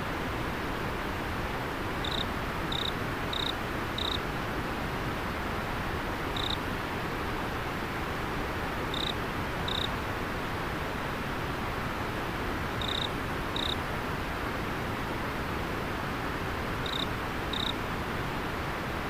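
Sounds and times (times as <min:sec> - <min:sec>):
river water flowing: 0:00.0 - 0:19.0
insect chirping: 0:02.0 - 0:04.2, 0:06.4 - 0:06.6, 0:08.9 - 0:09.9, 0:12.8 - 0:13.8, 0:16.8 - 0:17.8.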